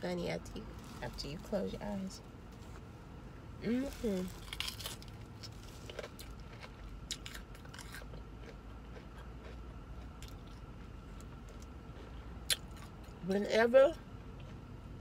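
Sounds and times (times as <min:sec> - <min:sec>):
chewing crunchy fried food: 0:04.2 - 0:13.2, 0:14.2 - 0:15.0.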